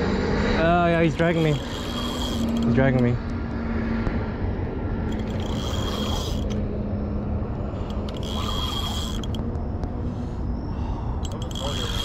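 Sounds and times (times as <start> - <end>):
fishing reel drag buzzing: 1.0 - 2.8, 5.0 - 6.6, 7.8 - 9.5, 11.2 - 12.0.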